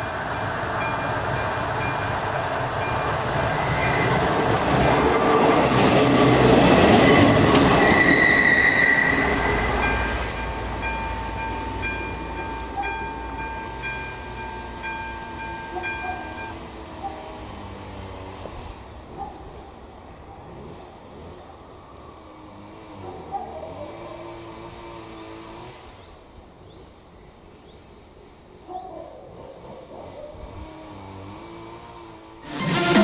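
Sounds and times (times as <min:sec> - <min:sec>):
high steady squeal: 0:00.0 - 0:16.5, 0:32.4 - 0:33.0
crossing warning bell ringing: 0:00.0 - 0:16.8
diesel railcar passing: 0:00.0 - 0:28.7, 0:29.3 - 0:33.0.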